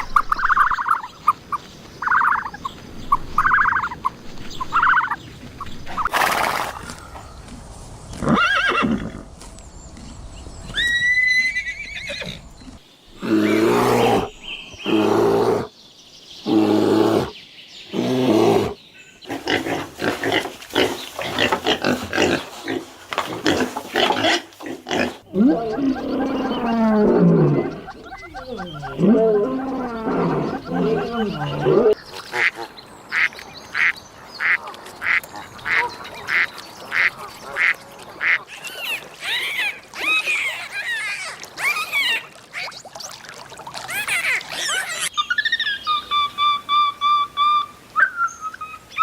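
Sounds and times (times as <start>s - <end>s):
loud drawn-out animal calls: 23.5s - 35.8s
fast animal chatter: 25.3s - 32.0s.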